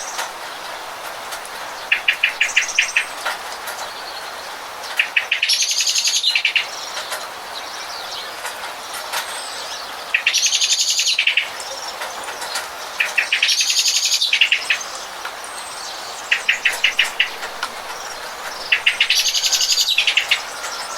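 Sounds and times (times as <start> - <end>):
rain hissing: 0.0 - 5.3, 11.2 - 20.9
songbird trilling: 1.7 - 3.2, 13.0 - 20.9.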